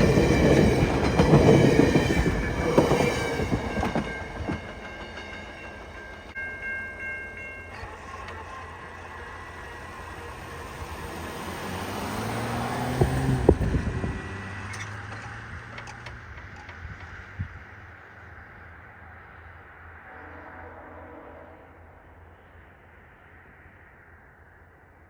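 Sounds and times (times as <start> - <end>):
train wheels clattering over rail joints: 0.0 - 6.3, 9.7 - 17.8
distant train horn chord: 20.0 - 22.5.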